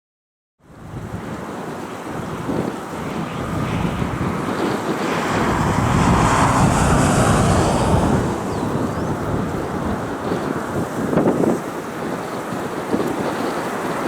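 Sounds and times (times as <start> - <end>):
wind buffeting microphone: 0.7 - 14.0
jet passing: 1.7 - 11.3.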